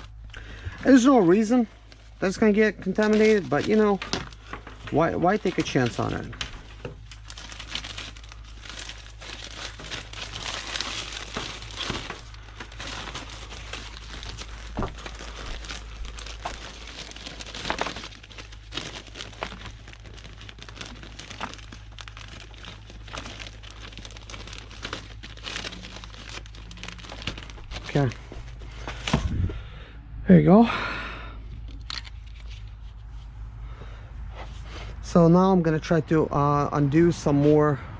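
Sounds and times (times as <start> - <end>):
plastic bag crinkling: 0.0 - 29.3.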